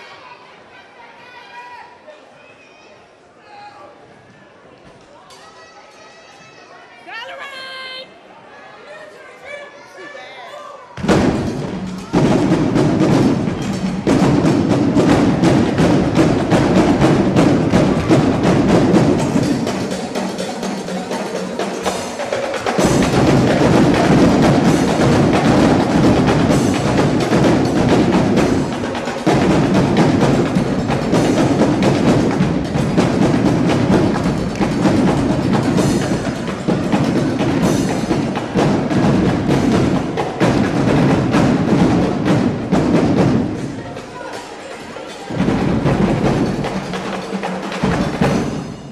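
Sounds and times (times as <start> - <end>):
bass drums: 11.0 - 43.8
drum line cadence: 11.0 - 48.9.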